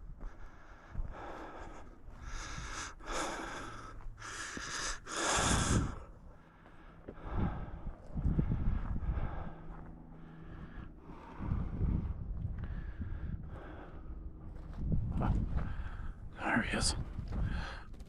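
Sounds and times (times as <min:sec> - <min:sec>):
man breathing hard: 0:00.0 - 0:16.3, 0:17.3 - 0:18.0.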